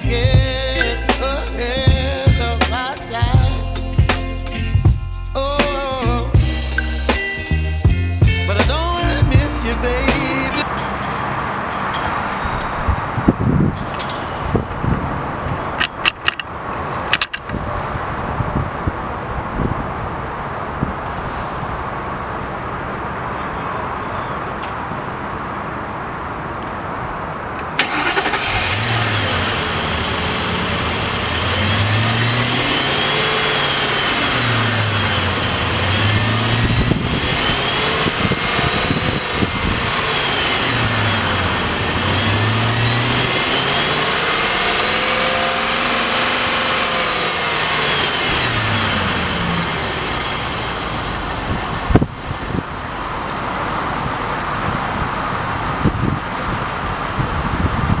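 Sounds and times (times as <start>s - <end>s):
car engine revving: 0.0s - 10.7s, 27.8s - 52.0s.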